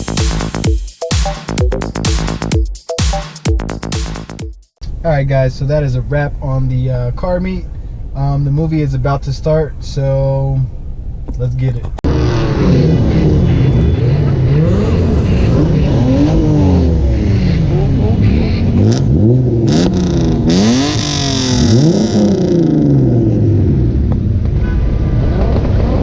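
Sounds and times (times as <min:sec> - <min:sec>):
car engines revving: 0:12.0 - 0:26.0.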